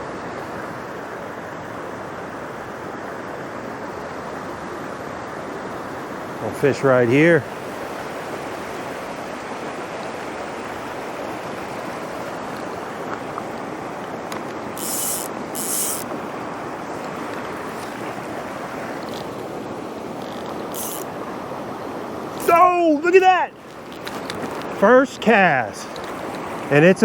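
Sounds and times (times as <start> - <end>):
mountain stream rushing: 0.0 - 27.0
short high hisses: 14.8 - 16.1, 20.7 - 21.2.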